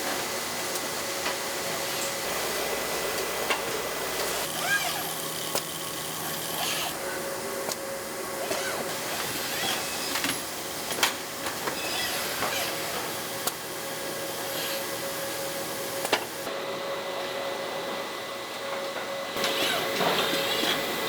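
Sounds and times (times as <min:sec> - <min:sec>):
machine hum: 0:02.1 - 0:16.6.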